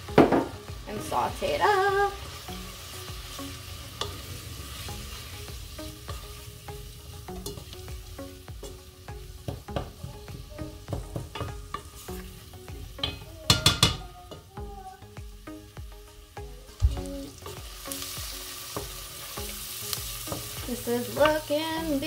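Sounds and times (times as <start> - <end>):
onions sizzling in a pot: 0.0 - 22.0
spoon knocking against pot: 13.0 - 14.1.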